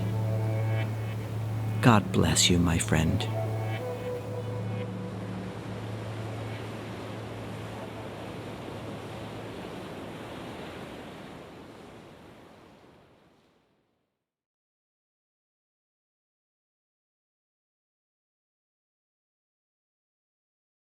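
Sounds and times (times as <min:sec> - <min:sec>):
ocean surf on shore: 0:00.0 - 0:13.8.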